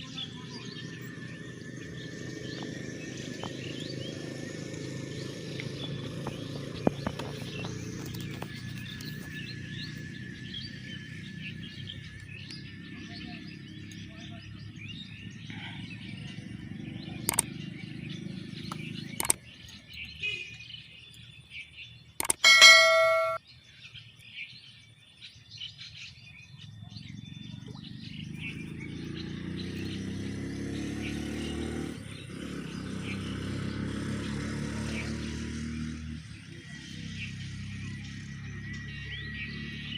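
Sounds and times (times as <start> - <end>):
small birds chirping: 0.0 - 39.9
sharp clicks: 17.2 - 17.5, 18.7 - 19.8, 22.2 - 23.4
loud brief pitched tone: 22.4 - 23.4.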